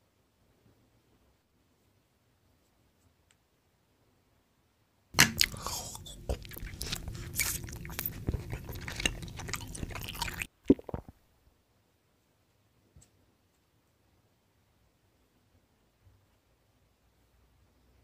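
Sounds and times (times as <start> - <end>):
crunchy chewing: 5.2 - 11.1
mouth smacks: 5.2 - 11.2.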